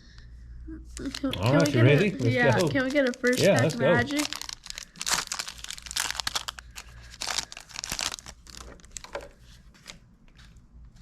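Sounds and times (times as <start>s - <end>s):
foil wrapper tearing and crinkling: 1.0s - 9.3s.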